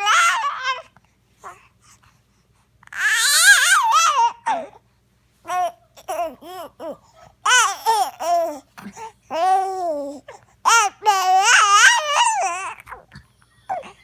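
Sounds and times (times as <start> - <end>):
baby babbling and squealing: 0.0 - 0.8, 2.9 - 4.7, 9.3 - 13.1.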